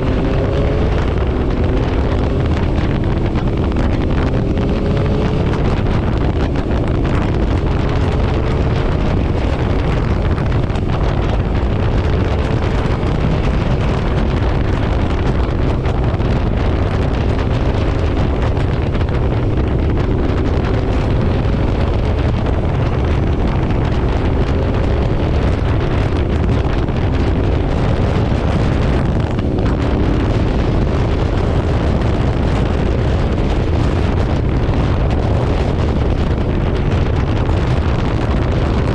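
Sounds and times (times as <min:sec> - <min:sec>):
motorcycle engine hum: 0:00.0 - 0:38.9
wind buffeting microphone: 0:00.0 - 0:38.9.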